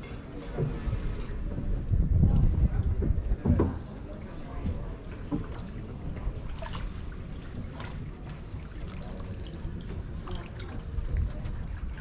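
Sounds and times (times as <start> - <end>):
water splashing against boat hull: 0.2 - 12.0.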